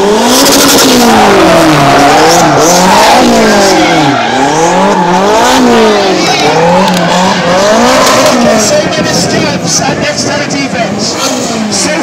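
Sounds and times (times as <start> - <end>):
small car engine revving hard: 0.0 - 9.4.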